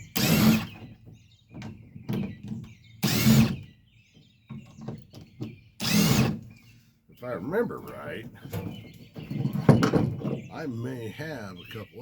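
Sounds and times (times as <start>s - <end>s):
power drill bursts: 0.1s - 0.8s, 3.0s - 3.6s, 5.8s - 6.4s.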